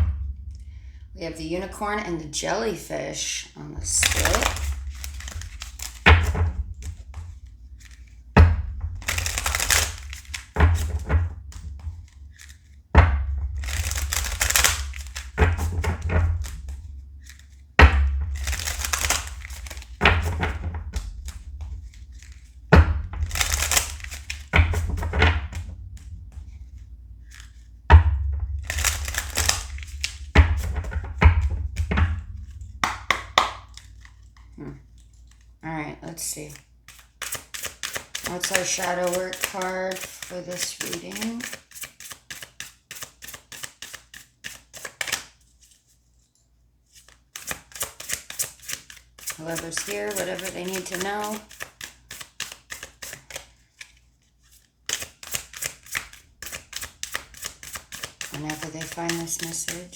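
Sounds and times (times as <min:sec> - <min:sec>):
cards shuffling: 0:03.8 - 0:08.2, 0:08.9 - 0:12.8, 0:13.4 - 0:27.8, 0:28.4 - 0:35.5, 0:36.1 - 0:46.0, 0:46.8 - 0:59.9
card deck knocking on surface: 0:03.8 - 0:35.4, 0:55.0 - 0:59.9.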